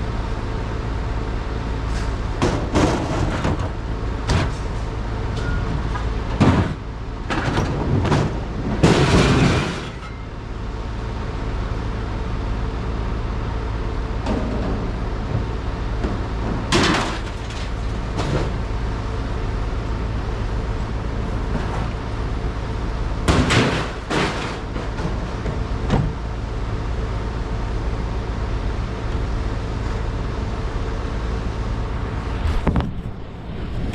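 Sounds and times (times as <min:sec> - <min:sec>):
heavy engine running: 0:00.0 - 0:33.9
clattering crash: 0:07.6 - 0:10.2, 0:16.7 - 0:18.5, 0:23.3 - 0:24.7
metallic clunks and bangs: 0:23.2 - 0:26.2.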